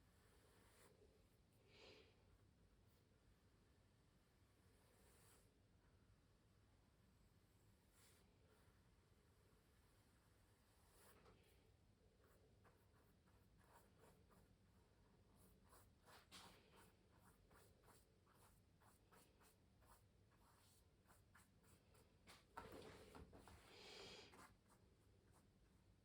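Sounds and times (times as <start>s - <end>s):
brush strokes scratching canvas: 12.2s - 25.8s.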